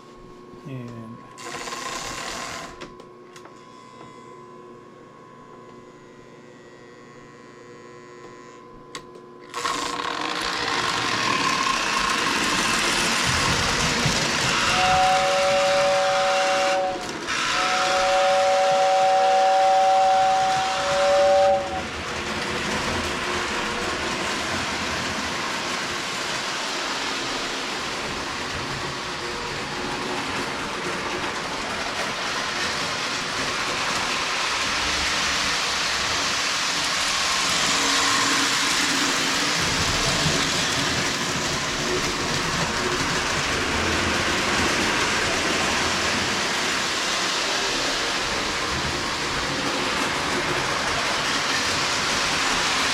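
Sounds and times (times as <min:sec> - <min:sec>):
electric train whistle: 0:07.7 - 0:22.1
model train running on track: 0:09.5 - 0:52.9.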